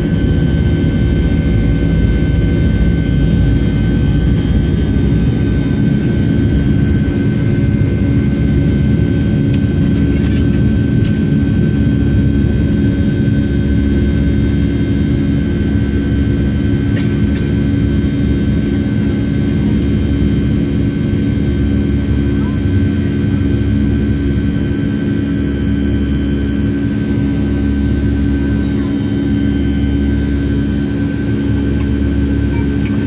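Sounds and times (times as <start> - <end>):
high even whine: 0.0 - 9.4
jet engines at high thrust: 0.0 - 33.0.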